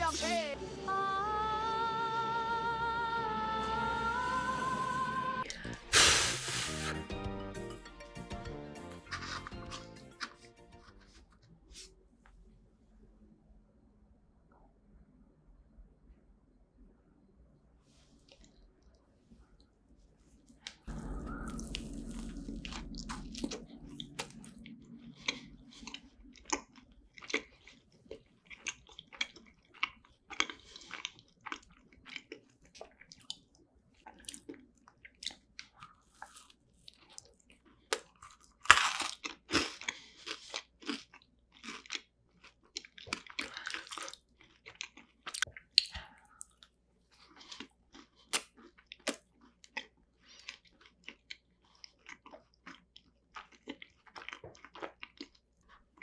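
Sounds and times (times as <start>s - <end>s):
wet chewing: 9.1s - 11.5s, 20.4s - 56.0s
crisp crunching bites: 37.9s - 42.0s.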